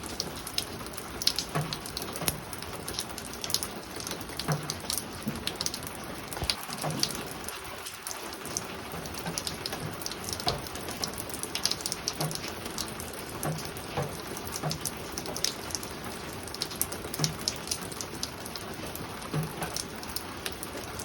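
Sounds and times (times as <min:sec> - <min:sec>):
rain falling on a roof: 0:00.0 - 0:21.0.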